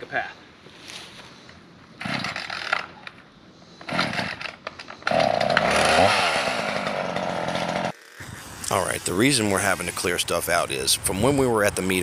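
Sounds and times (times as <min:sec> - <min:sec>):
small gasoline engine running: 0:05.1 - 0:08.3.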